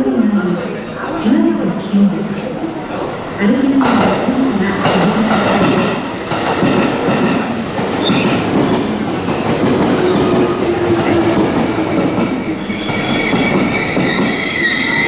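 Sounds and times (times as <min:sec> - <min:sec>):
high steady squeal: 0:10.7 - 0:15.0.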